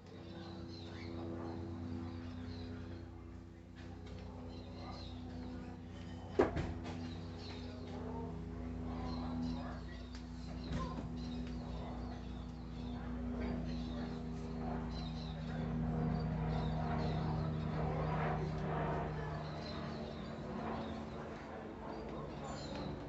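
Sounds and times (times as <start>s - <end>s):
steady low hum: 0.0s - 23.0s
small birds chirping: 7.0s - 23.0s.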